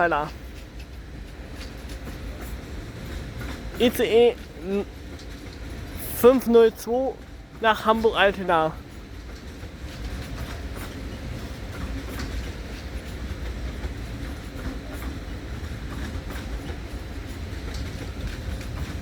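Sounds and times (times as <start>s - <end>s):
train rumbling: 0.0s - 19.0s
wheels clicking over rail joints: 0.0s - 19.0s.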